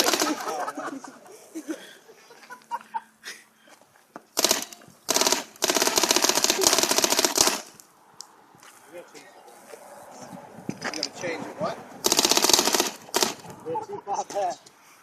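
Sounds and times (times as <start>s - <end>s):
paintball gun rapid shots: 0.0s - 0.6s, 4.4s - 7.8s, 12.0s - 13.5s.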